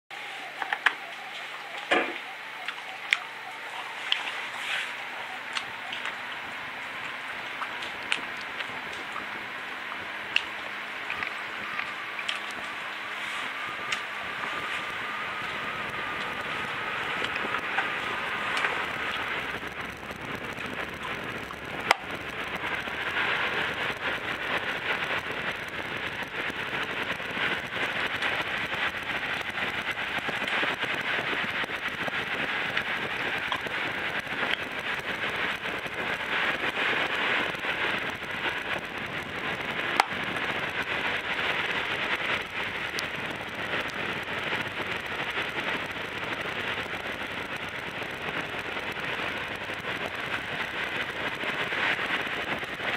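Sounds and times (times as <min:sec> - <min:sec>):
fan wind on microphone: 0:00.1 - 0:52.9
rain pattering: 0:00.1 - 0:52.9.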